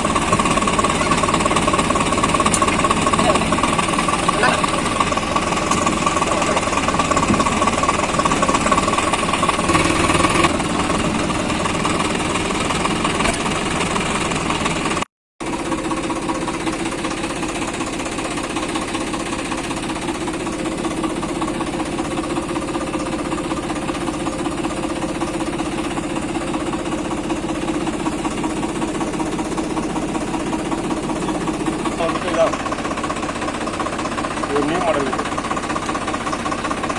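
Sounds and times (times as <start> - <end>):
tractor diesel engine clattering: 0.0 - 36.9.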